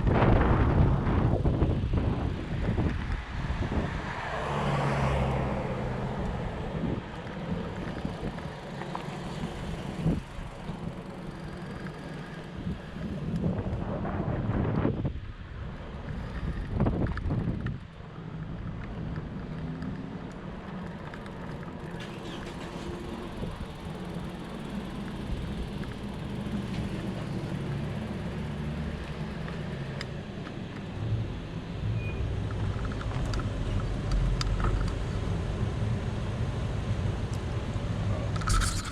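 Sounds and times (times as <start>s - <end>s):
bike tyres rolling over ground: 16.0s - 28.3s
small clicks and knocks: 32.4s - 35.0s.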